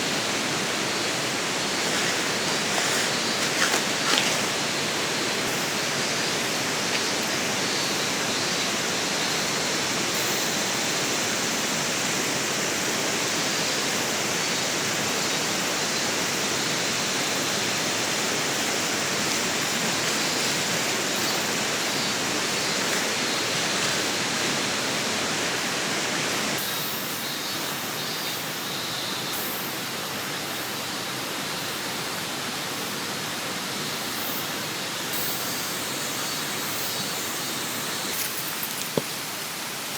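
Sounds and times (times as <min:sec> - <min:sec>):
river water rushing: 0:00.0 - 0:12.2, 0:14.8 - 0:26.6.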